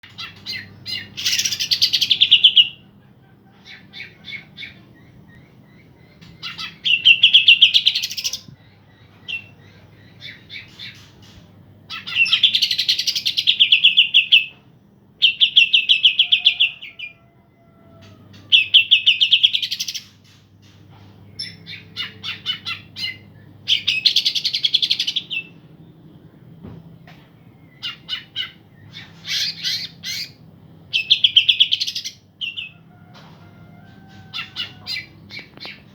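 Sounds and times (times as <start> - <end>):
bird chirps: 0.0 - 14.6, 18.3 - 26.4, 27.4 - 32.8
birds singing rattling song: 0.0 - 35.9
faint low hum: 0.0 - 35.9.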